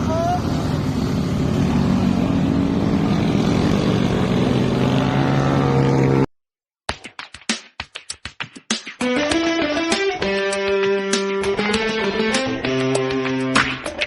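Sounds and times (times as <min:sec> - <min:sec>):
motorcycle engine running: 0:00.0 - 0:06.3
choppy bursts of music: 0:06.9 - 0:14.0.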